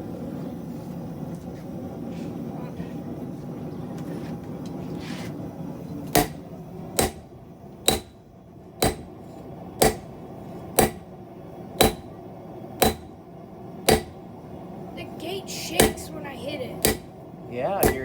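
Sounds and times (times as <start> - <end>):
hammer striking steel on an anvil: 6.1 - 11.1, 11.8 - 12.2, 12.8 - 13.2, 13.8 - 14.2, 15.8 - 16.0, 16.8 - 17.2, 17.8 - 18.0.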